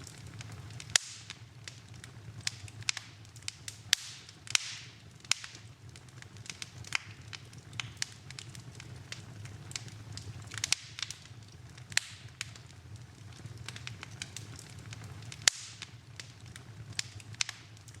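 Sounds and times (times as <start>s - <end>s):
fire crackling: 0.0s - 18.0s
fire popping: 0.0s - 18.0s.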